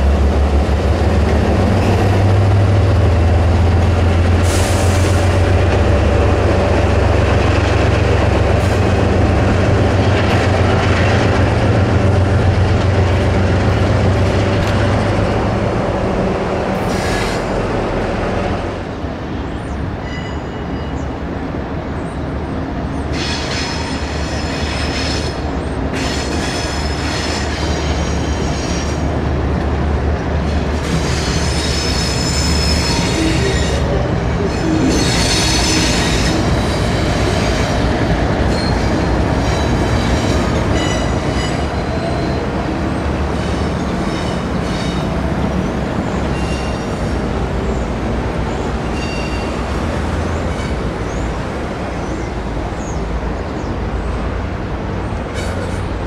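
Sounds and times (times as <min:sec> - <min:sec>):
train wheels rumbling on rail: 0:00.0 - 0:56.0
high wheel squeals: 0:30.9 - 0:37.9, 0:46.1 - 0:47.8, 0:48.5 - 0:49.6.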